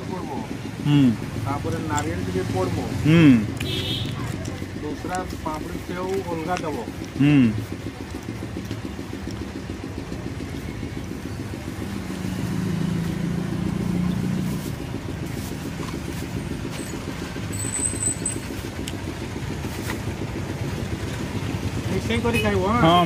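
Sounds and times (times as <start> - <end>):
vehicle passing: 0.0 - 17.5
road traffic engines: 0.0 - 23.0.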